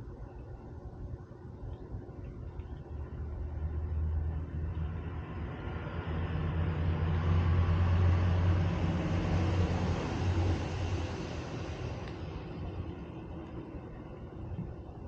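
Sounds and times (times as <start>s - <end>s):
low engine hum: 0.0s - 15.0s
motor vehicle passing: 3.2s - 13.6s.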